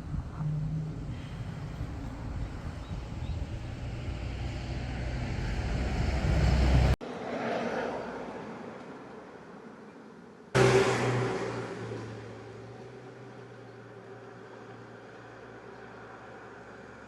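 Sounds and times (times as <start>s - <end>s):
wind noise: 0.0s - 7.0s.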